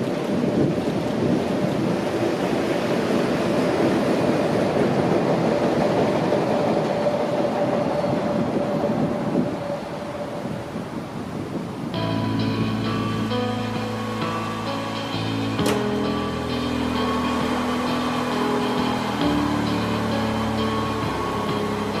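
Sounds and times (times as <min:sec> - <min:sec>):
train wheels rumbling on rails: 0:00.0 - 0:22.0
steady whine: 0:11.9 - 0:22.0.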